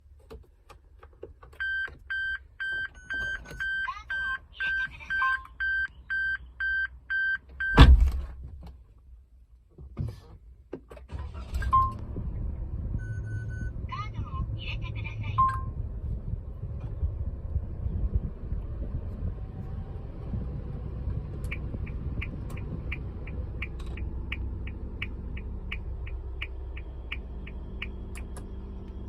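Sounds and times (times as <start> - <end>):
dashboard warning chime beeping: 1.6 - 7.8, 13.0 - 13.7, 15.2 - 15.8
car engine starting and idling: 10.3 - 29.0.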